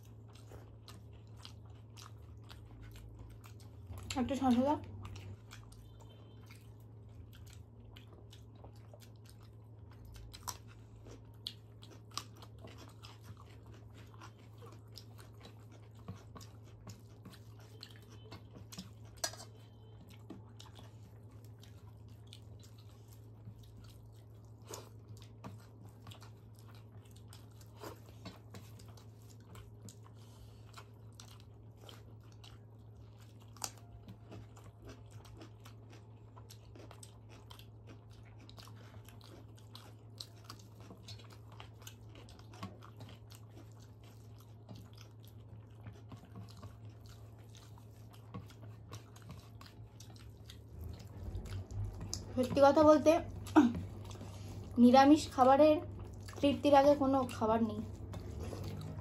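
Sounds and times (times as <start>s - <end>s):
chewing and mouth sounds: 0.0s - 59.0s
food crunching: 0.0s - 59.0s
steady low hum: 46.6s - 59.0s.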